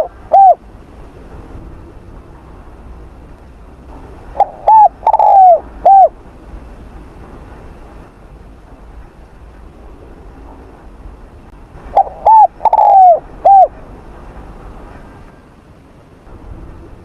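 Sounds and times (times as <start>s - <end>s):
dove cooing: 0.0s - 0.6s, 4.4s - 6.1s, 11.9s - 13.7s.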